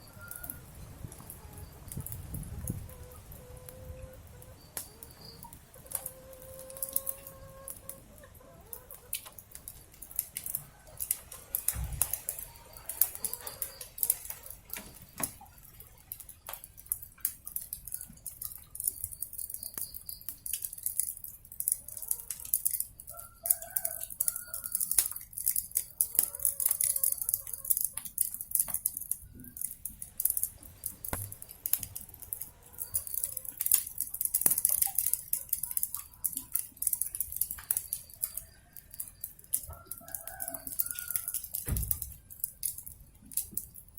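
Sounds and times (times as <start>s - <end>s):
chickens clucking: 0.0s - 15.6s, 26.0s - 28.1s
wood fire crackling: 0.0s - 43.9s.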